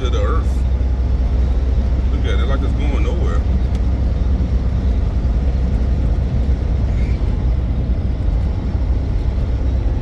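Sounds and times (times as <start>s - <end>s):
truck engine and road noise: 0.0s - 10.0s.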